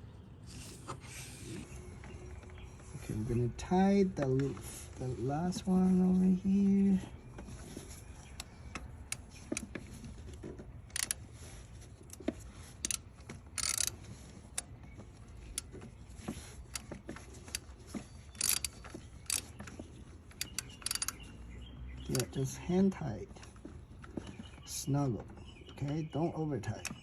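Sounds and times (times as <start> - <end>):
hand tools clinking on bolt: 13.6 - 13.9, 22.1 - 22.6.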